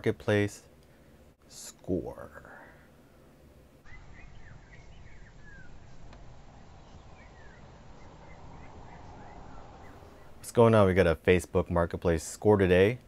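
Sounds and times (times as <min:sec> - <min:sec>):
low outdoor hum: 0:00.0 - 0:13.0
small birds chirping: 0:02.6 - 0:10.7.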